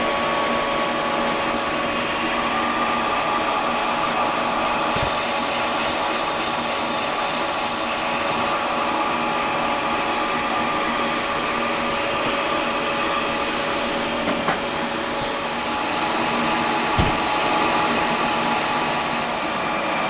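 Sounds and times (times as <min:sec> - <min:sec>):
machine motor humming: 0:08.0 - 0:20.0.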